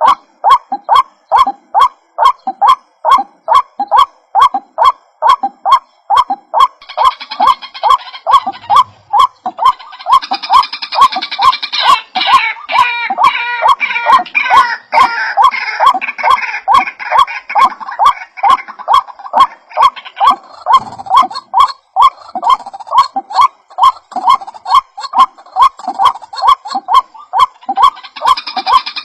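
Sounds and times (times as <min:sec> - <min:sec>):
waterhen calling: 0:00.0 - 0:29.0.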